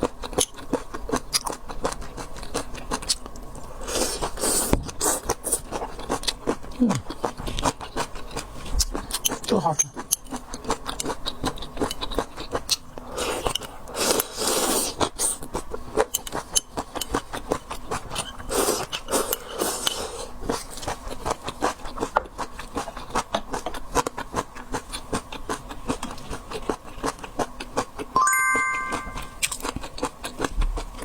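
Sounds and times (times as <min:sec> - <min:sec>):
chewing seafood crackling: 0:00.0 - 0:28.2, 0:29.4 - 0:31.0.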